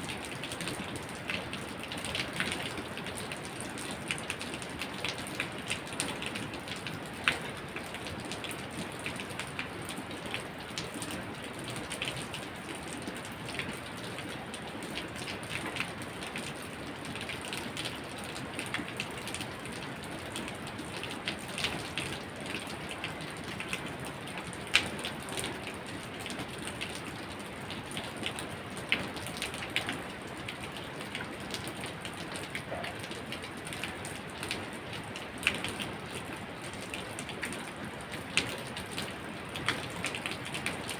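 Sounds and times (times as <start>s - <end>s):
raindrops tapping on a surface: 0.1s - 40.9s.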